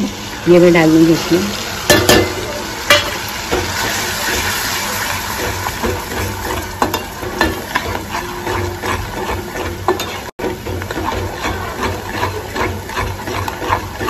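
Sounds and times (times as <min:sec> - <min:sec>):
spices sizzling in hot oil: 0:00.0 - 0:14.0
metal spoon stirring: 0:01.9 - 0:14.0
spoon knocking on pan: 0:05.4 - 0:14.0.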